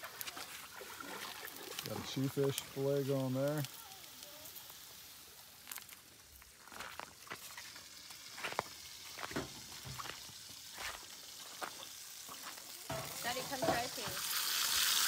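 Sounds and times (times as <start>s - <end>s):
fish frying in a pan: 0.0s - 15.0s
cooking utensils clinking: 12.9s - 14.2s.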